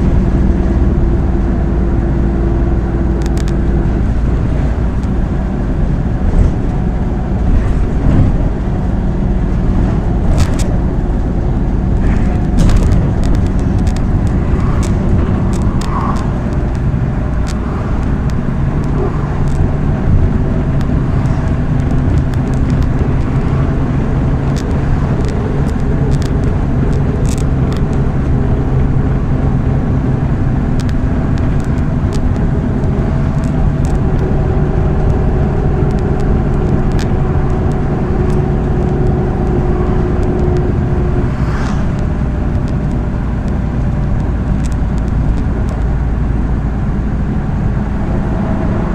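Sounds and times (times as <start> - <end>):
clicks and rattles from bus body: 0.0 - 41.3, 41.9 - 48.9
bus diesel engine hum: 0.0 - 48.9
road noise: 0.0 - 48.9.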